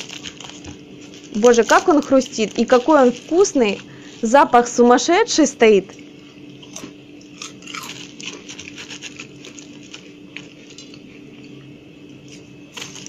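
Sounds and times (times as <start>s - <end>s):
person chewing crunchy pastry: 6.5s - 13.0s.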